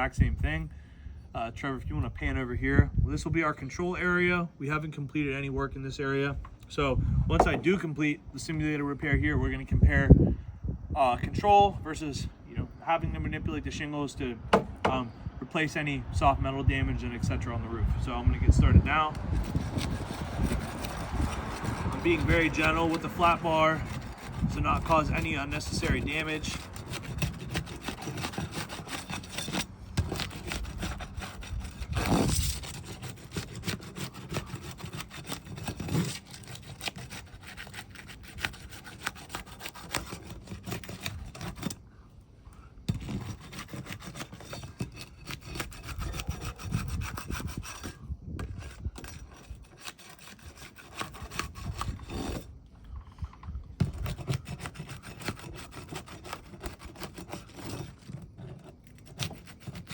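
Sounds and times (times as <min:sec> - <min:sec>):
flat bar scraping shingles: 0:18.5 - 0:41.8, 0:42.8 - 0:59.9.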